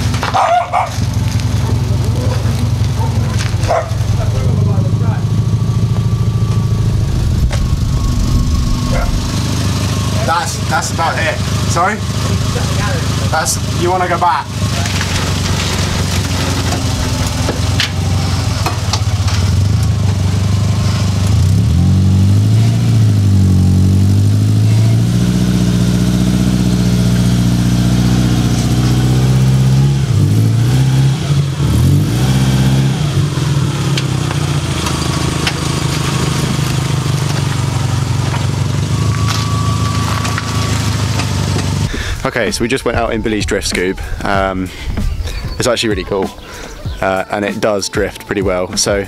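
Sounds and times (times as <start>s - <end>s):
car engine revving: 0.0s - 46.8s.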